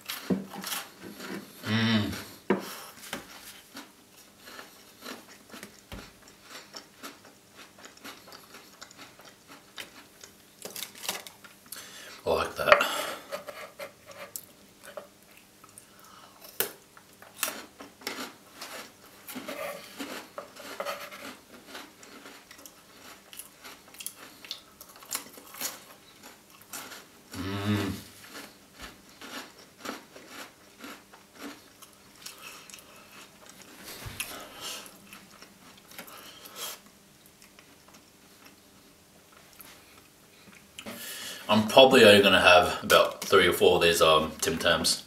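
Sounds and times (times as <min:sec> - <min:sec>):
person humming: 0:01.6 - 0:02.4, 0:27.3 - 0:28.1.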